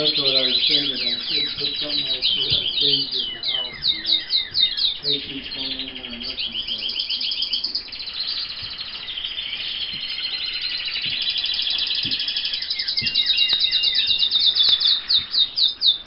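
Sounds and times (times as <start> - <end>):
canaries trilling: 0.0 - 16.0.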